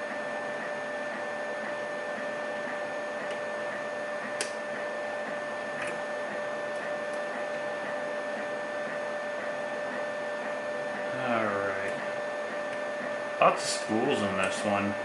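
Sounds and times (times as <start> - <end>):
hiss and electrical whine: 10.5 - 15.0.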